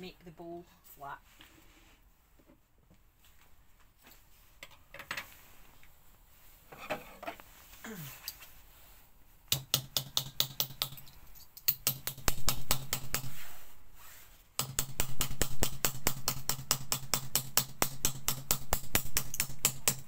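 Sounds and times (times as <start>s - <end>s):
mallet hammering metal spoon: 14.6s - 20.0s.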